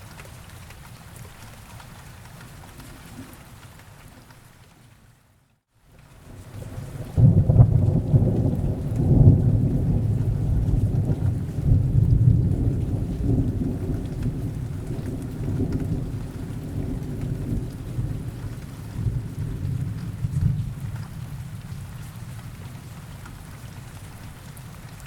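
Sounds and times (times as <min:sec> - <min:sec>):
steady rain hissing: 0:00.0 - 0:25.0
rolling thunder: 0:06.5 - 0:21.9.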